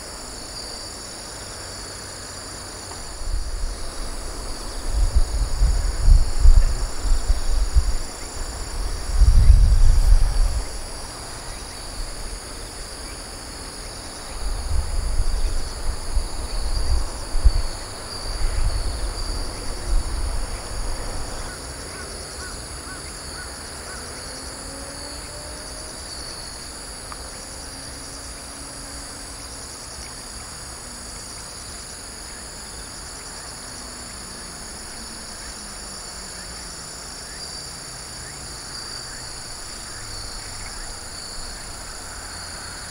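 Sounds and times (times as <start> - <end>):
insects chirping chorus: 0.0 - 42.9
wind buffeting microphone: 3.0 - 12.5, 14.0 - 21.8.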